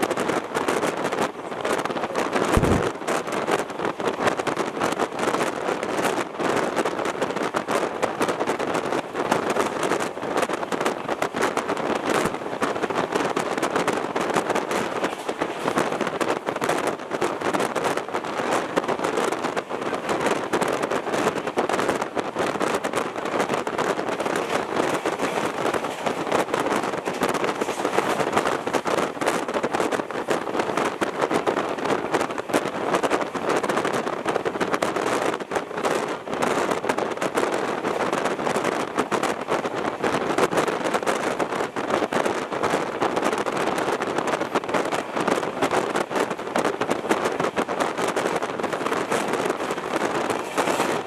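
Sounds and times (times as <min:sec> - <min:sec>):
fast train running noise: 0:00.0 - 0:51.0
passing wind: 0:00.0 - 0:51.0
wheels on rails rattling: 0:00.0 - 0:51.0
rapid irregular rattling: 0:12.6 - 0:31.1, 0:47.0 - 0:51.0.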